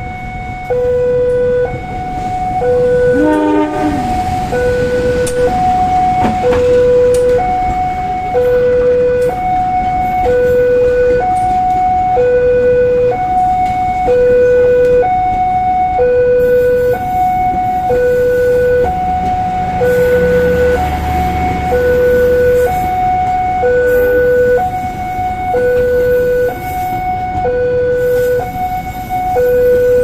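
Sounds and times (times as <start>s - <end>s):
two-tone warning siren: 0.0s - 30.0s.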